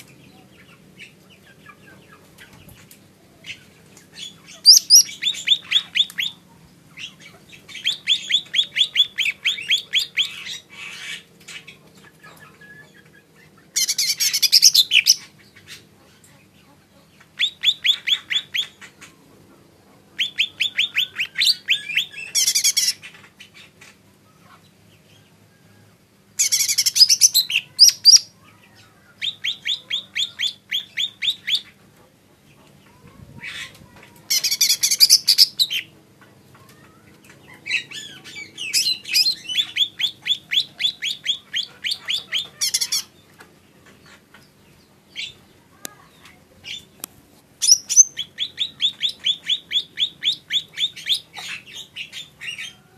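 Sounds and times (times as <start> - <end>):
bird chattering: 0.4 - 19.3, 20.2 - 24.5, 26.4 - 28.4, 29.1 - 31.9, 32.5 - 35.9, 36.6 - 47.0, 47.6 - 52.9
bird singing rapid chip notes: 4.1 - 6.4, 7.0 - 11.8, 13.8 - 15.4, 26.4 - 28.3, 34.3 - 35.9, 37.5 - 43.2, 47.6 - 52.6.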